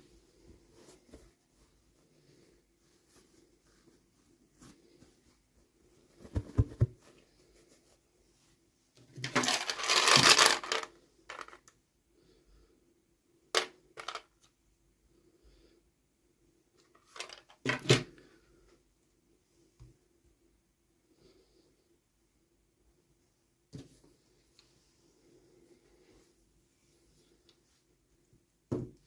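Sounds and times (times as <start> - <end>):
packaging crinkling: 9.2 - 11.5
plastic toys clicking and tapping: 9.2 - 11.8, 13.6 - 14.4.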